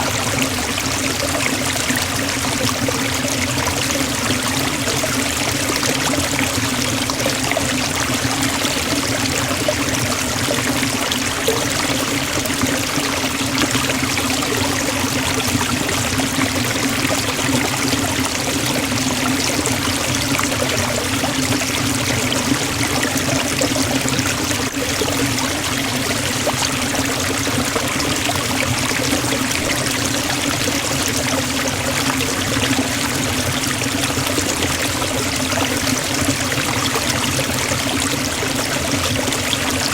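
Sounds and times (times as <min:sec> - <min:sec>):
waterfall rushing: 0:00.0 - 0:05.1.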